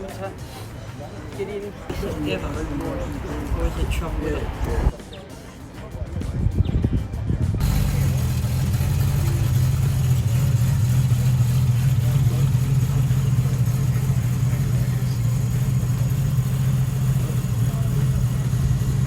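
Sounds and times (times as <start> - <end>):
car engine idling: 7.6 - 19.0.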